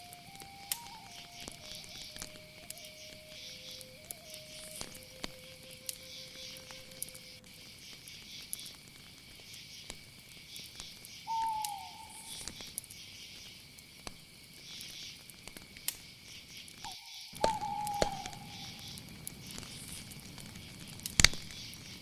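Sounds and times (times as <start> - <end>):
short whistled calls: 0.0 - 7.4, 11.2 - 12.6, 16.8 - 19.0
crickets trilling: 0.0 - 22.0
faint clicks: 0.0 - 22.0.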